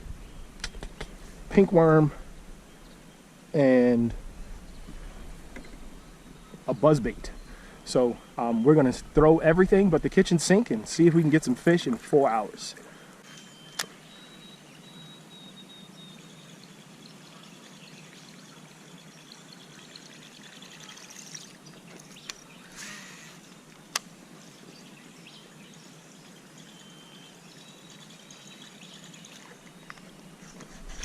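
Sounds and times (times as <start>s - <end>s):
high whistled bird calls: 13.2s - 20.2s, 24.8s - 30.1s
faint trickling water: 16.0s - 22.7s, 25.3s - 30.4s.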